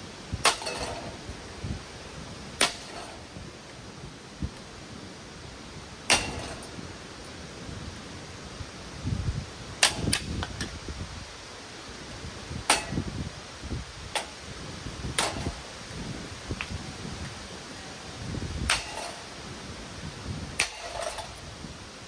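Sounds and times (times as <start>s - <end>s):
blows striking metal fan body: 0.3s - 3.6s, 6.0s - 7.0s, 9.7s - 10.9s, 12.5s - 16.8s, 18.3s - 21.9s
handling noise: 14.0s - 21.7s.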